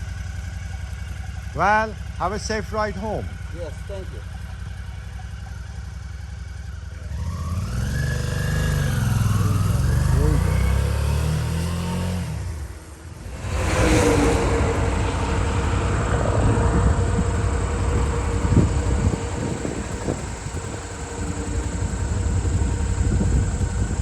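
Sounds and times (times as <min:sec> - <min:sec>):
motorcycle engine running: 0:00.0 - 0:24.0
wind noise: 0:13.1 - 0:24.0.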